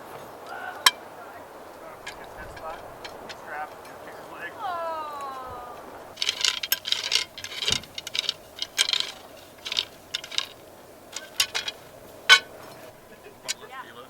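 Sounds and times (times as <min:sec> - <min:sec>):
small hard objects clinking: 0:01.8 - 0:04.0, 0:06.1 - 0:13.7.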